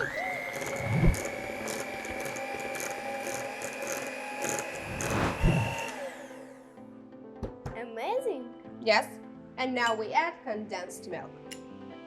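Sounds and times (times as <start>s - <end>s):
electric mixer whining: 0.0s - 6.6s
low thumps: 4.8s - 5.8s.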